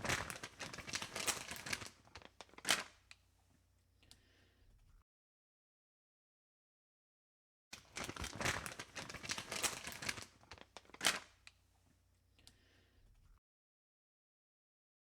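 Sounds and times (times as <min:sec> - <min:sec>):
crinkling crackling rustle: 0:00.0 - 0:03.2, 0:07.8 - 0:11.6.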